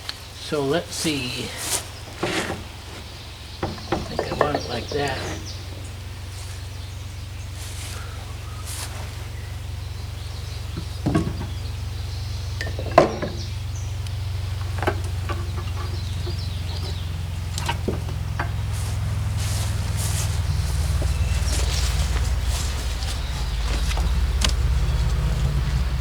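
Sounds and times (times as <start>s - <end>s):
steady low hum: 0.0s - 26.0s
knocks and clunks from handling: 1.9s - 5.7s, 10.8s - 11.6s, 12.6s - 13.5s, 14.7s - 24.8s.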